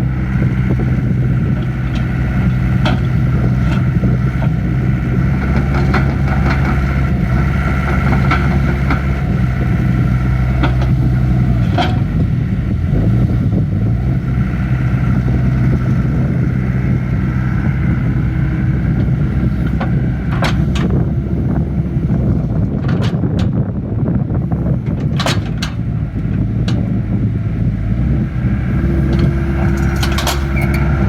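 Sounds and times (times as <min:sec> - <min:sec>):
diesel excavator engine running: 0:00.0 - 0:31.0
metallic clanks and knocks: 0:02.8 - 0:03.8, 0:19.6 - 0:21.0, 0:25.0 - 0:25.8, 0:29.1 - 0:30.8.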